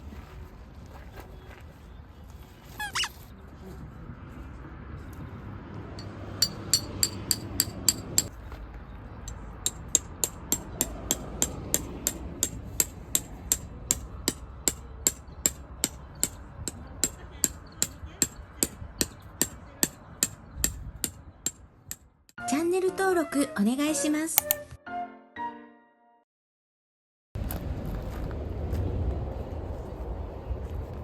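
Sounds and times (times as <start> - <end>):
rapid hammer-like blows: 9.6 - 22.0.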